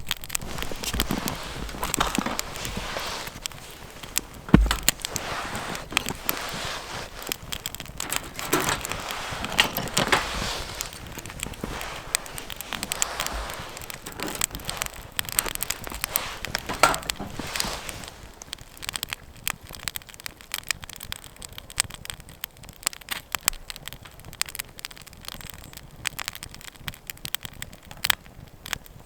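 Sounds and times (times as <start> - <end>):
irregular crackling and clicking: 0.0 - 29.0
heavy thump: 1.0 - 17.6.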